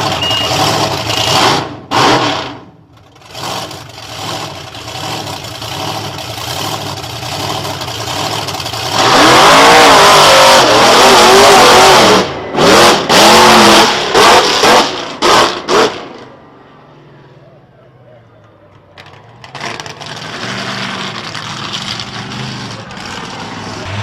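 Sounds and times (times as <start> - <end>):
engine throttle blips: 0.0 - 1.6
truck engine revving: 0.0 - 16.5, 19.0 - 24.0.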